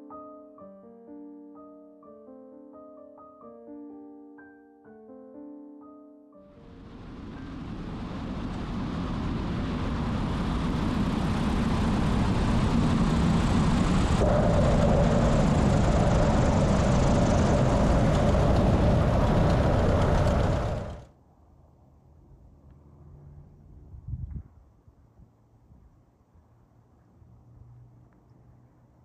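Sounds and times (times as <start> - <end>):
steady high tone: 0.0 - 21.0
propeller aircraft engine running: 6.7 - 21.1.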